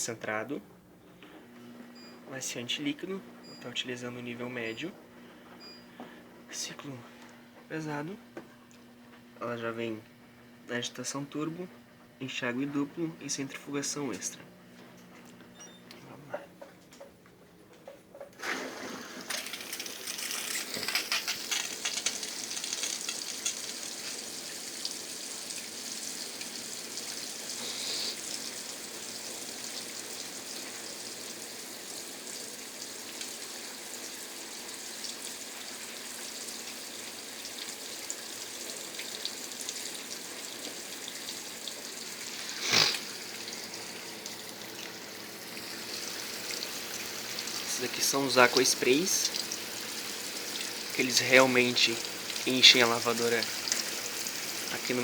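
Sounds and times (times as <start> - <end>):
water spraying into washer drum: 18.4 - 55.0.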